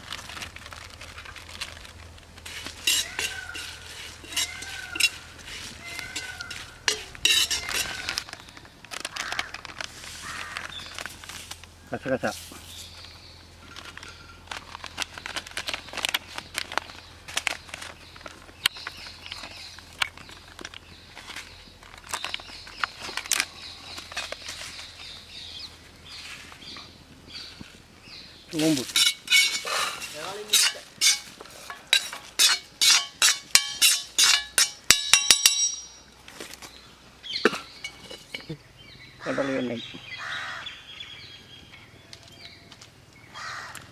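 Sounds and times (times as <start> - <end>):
metal ladle scraping a pan: 2.4 - 8.2, 28.8 - 35.9
metal on metal taps: 5.8 - 8.2, 28.9 - 36.0.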